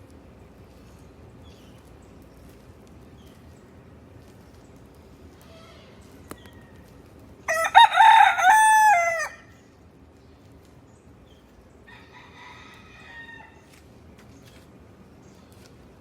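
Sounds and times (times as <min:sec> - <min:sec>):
rooster crowing: 0:07.5 - 0:09.5, 0:11.9 - 0:13.6.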